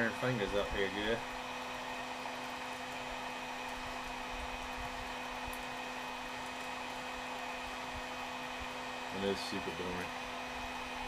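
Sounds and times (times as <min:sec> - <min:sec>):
heat gun blowing: 0:00.0 - 0:11.0.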